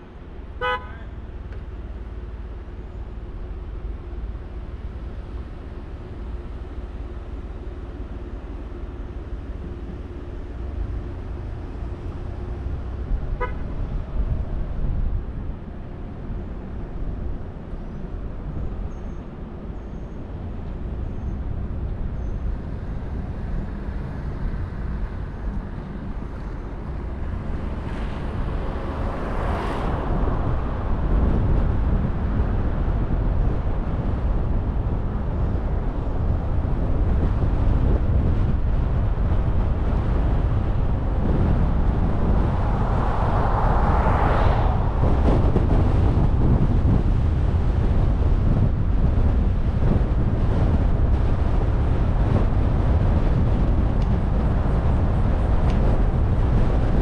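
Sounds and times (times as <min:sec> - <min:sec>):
tyre and wind noise: 0:01.5 - 0:57.0
vehicles whooshing past: 0:22.6 - 0:35.0, 0:39.2 - 0:57.0.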